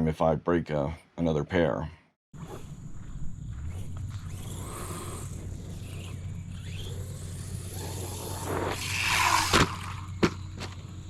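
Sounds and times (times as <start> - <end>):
rc truck motor and tyres on dirt: 2.4 - 11.0.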